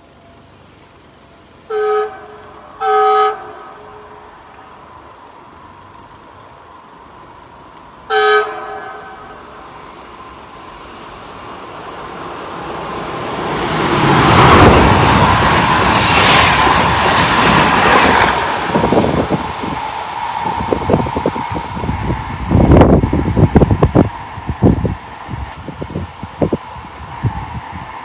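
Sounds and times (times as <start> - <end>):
train passing at speed: 0.0 - 28.0
train horn blast: 1.7 - 4.3, 8.1 - 9.5.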